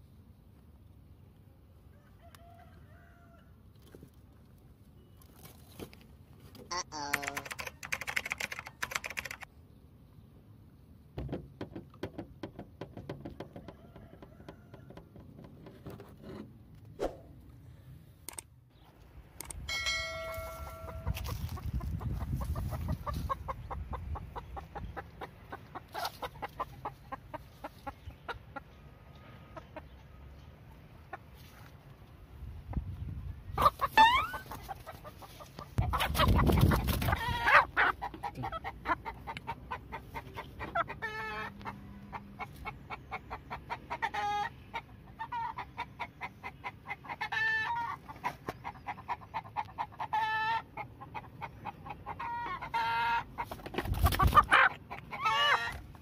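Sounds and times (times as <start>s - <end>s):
chickens clucking: 20.2s - 56.0s.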